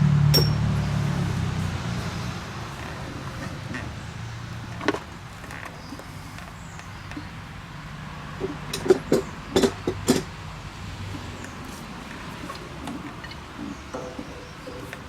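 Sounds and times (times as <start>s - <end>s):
metal tools clinking and knocking: 0.4s - 0.6s, 8.4s - 10.3s, 11.1s - 15.0s.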